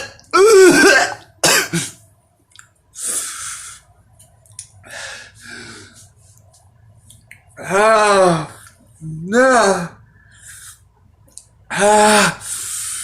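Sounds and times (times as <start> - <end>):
man groaning: 7.6 - 10.0.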